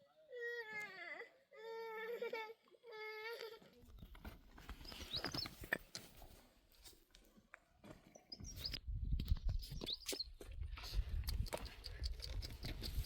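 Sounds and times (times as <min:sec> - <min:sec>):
high bird chirps: 0:08.1 - 0:08.8, 0:09.5 - 0:10.4.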